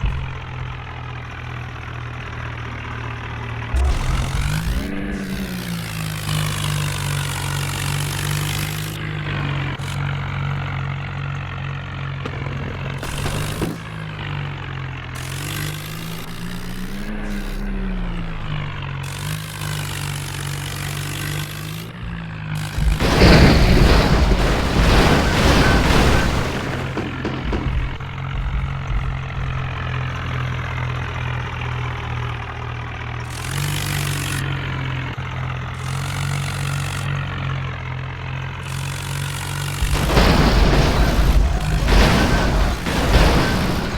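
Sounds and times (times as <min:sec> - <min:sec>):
tractor diesel engine revving: 0:00.0 - 0:43.9
loud rushing noise: 0:22.8 - 0:29.4, 0:39.8 - 0:43.9.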